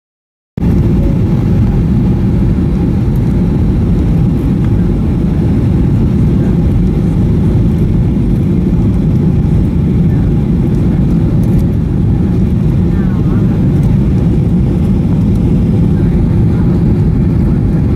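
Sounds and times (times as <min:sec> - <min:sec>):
aircraft cabin engine rumble: 0:00.6 - 0:17.9.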